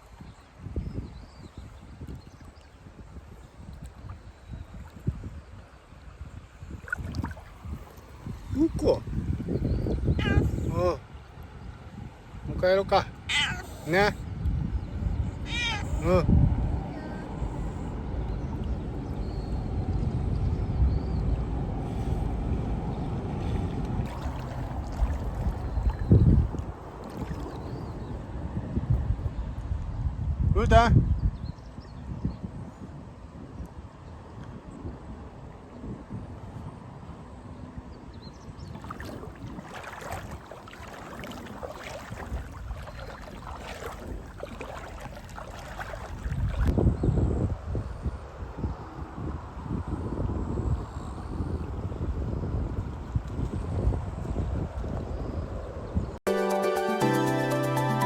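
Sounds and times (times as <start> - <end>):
flowing river water: 0.0 - 14.2, 21.8 - 28.6, 38.4 - 46.9
wind rumble on microphone: 0.0 - 56.2.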